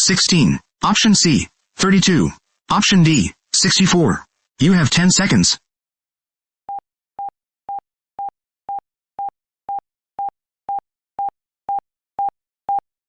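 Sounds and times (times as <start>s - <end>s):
timer beeping: 6.7s - 12.8s.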